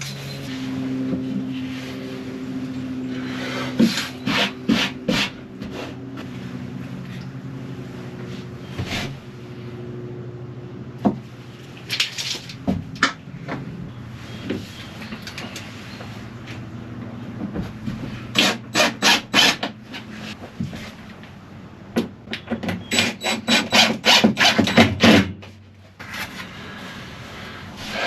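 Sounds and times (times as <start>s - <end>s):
scraping strokes on wood: 0.0s - 7.2s, 26.0s - 28.0s
low steady hum: 0.0s - 21.9s.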